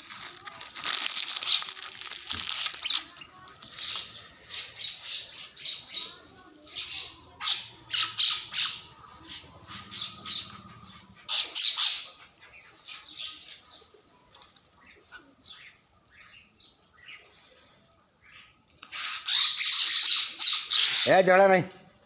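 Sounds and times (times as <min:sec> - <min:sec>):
birds squawking harshly: 0:00.5 - 0:13.8, 0:18.3 - 0:21.6.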